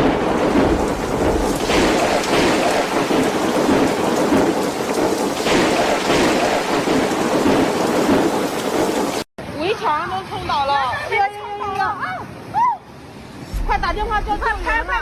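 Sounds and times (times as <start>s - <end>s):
heavy rain: 0.0s - 9.3s.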